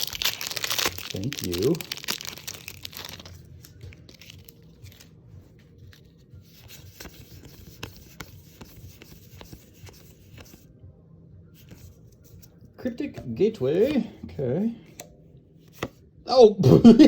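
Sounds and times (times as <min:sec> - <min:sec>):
cards clicking and scraping: 0:05.9 - 0:10.6.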